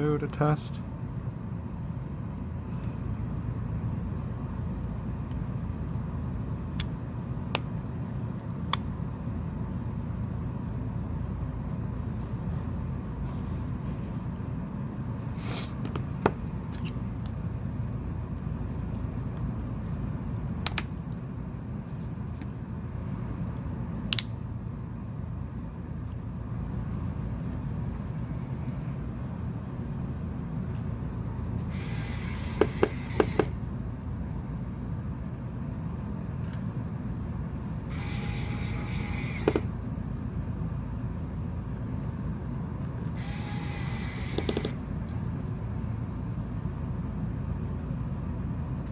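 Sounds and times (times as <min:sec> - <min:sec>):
low background hum: 0:00.0 - 0:48.9
low background rumble: 0:00.0 - 0:48.9
small phone parts clicking: 0:31.6 - 0:33.6, 0:37.9 - 0:39.7, 0:43.2 - 0:44.8.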